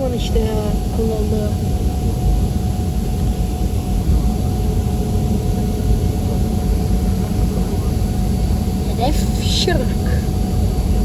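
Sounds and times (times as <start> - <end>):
faint steady hum: 0.0 - 11.0
jet engine rumble in cabin: 0.0 - 11.0.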